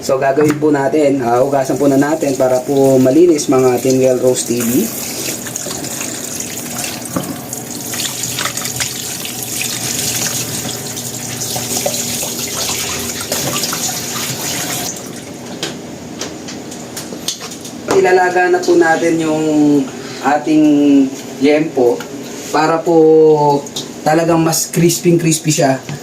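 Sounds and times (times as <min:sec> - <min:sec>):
water splashing: 0:01.6 - 0:15.3
tap running into sink: 0:11.5 - 0:15.0.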